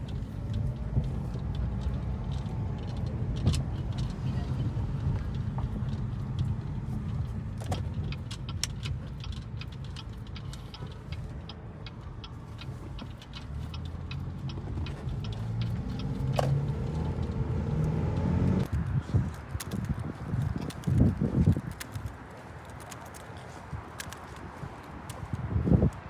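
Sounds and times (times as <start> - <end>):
light ticking: 0.0 - 18.0
car engine running without exhaust: 0.0 - 19.0.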